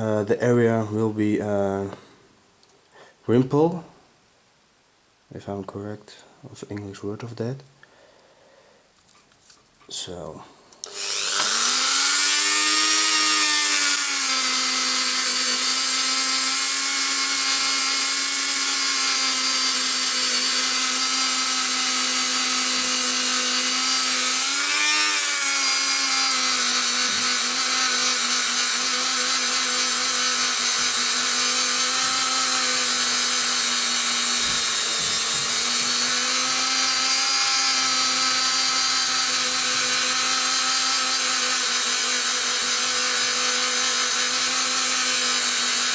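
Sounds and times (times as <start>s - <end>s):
rotary tool whining: 10.8s - 45.9s.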